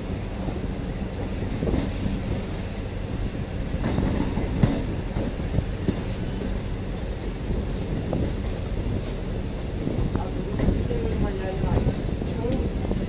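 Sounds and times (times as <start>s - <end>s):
train rumbling on track: 0.0s - 13.0s
sharp knocks from train wheels: 3.8s - 6.6s.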